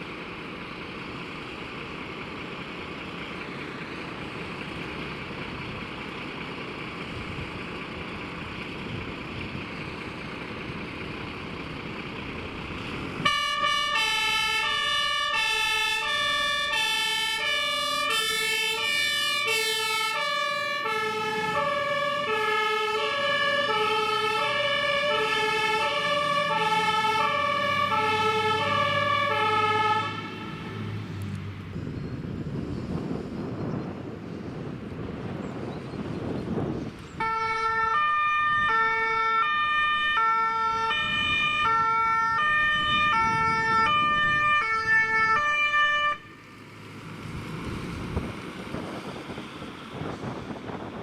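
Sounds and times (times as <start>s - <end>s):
vehicle rumble: 0.0s - 51.0s
fire engine two-tone siren: 9.6s - 31.3s, 37.2s - 46.4s.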